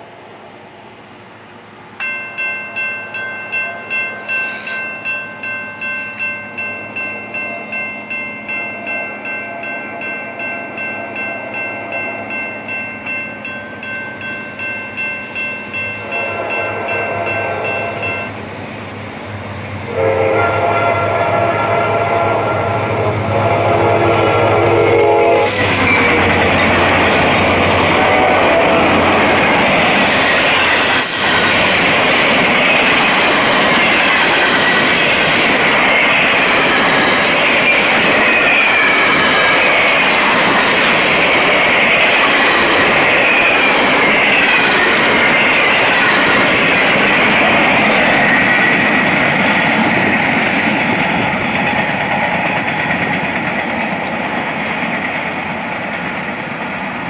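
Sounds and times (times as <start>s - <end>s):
train wheels rumbling on rail: 0.0s - 57.0s
freight train horn: 15.9s - 18.5s, 19.8s - 31.8s
wheel squeal: 54.8s - 55.3s, 56.3s - 57.0s.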